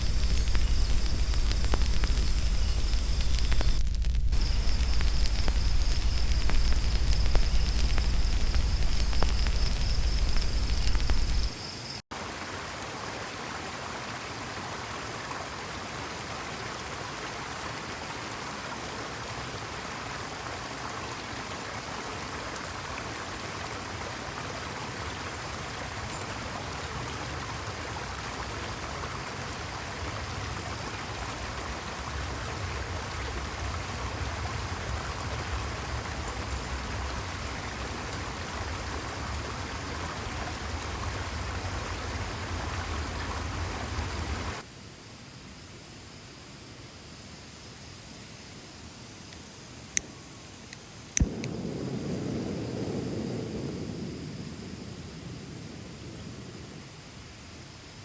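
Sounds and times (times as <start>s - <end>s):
deep rumble: 0.0s - 11.6s
stream rushing over rocks: 12.1s - 44.6s.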